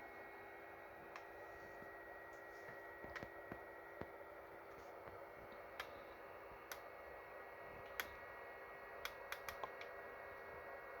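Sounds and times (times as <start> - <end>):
faint steady hum: 0.0 - 11.0
sharp clicks: 9.0 - 10.0.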